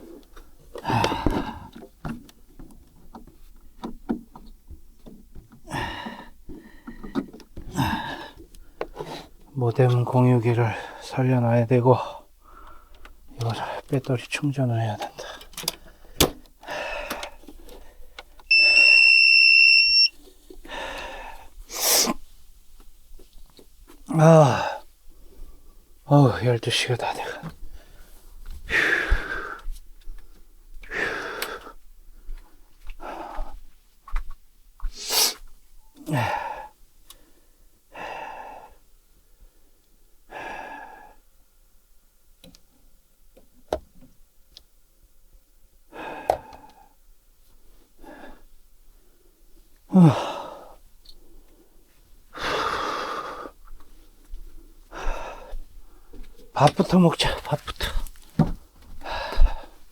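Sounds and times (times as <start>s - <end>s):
man sighing and breathing heavily: 0.7s - 1.9s, 5.6s - 8.5s, 15.0s - 18.0s, 20.6s - 22.2s, 24.1s - 24.9s, 28.7s - 29.7s, 36.0s - 36.8s, 45.9s - 47.0s, 49.9s - 50.8s, 52.4s - 53.6s, 54.9s - 56.2s, 57.2s - 59.9s
long electronic beep: 18.5s - 20.2s
handling rustling: 56.4s - 59.0s.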